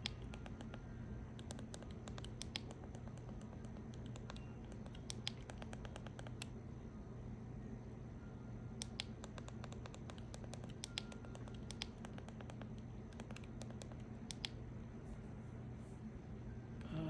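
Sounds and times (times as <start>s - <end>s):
steady low hum: 0.0s - 17.0s
keyboard key clicks: 8.8s - 14.6s.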